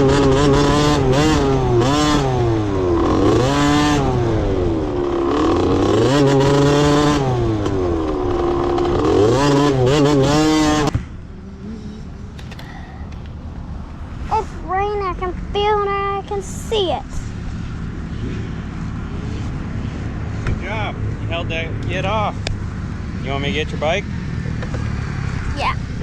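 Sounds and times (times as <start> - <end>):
dirt bike engine revving: 0.0 - 15.5.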